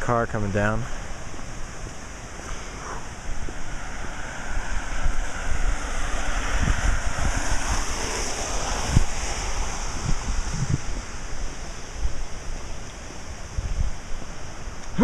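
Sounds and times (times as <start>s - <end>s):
car tyres hissing on wet road: 0.8s - 15.0s
wind buffeting microphone: 3.0s - 15.0s.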